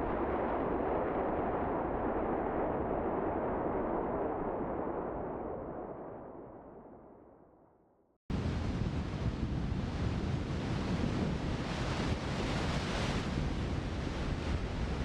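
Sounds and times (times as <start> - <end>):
storm wind buffeting microphone: 8.3 - 15.0.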